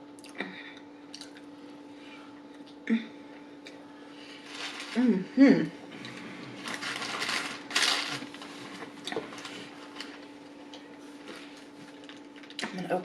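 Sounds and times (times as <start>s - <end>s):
faint steady hum: 0.0s - 13.0s
rustling and crinkling: 4.3s - 5.2s, 5.9s - 12.6s.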